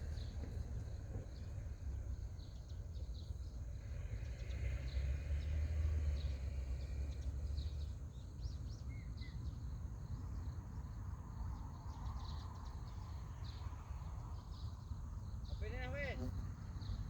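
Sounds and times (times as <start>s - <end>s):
small birds chirping: 6.2s - 17.0s.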